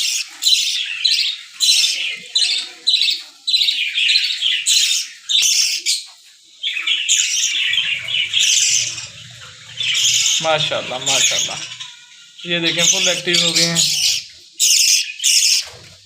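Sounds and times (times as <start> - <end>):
baby birds begging calls: 0.0 - 16.0.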